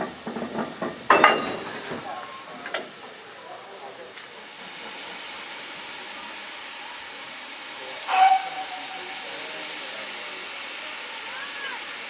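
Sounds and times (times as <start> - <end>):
steam hissing: 0.0 - 12.0
steam whistle toot: 8.1 - 9.4.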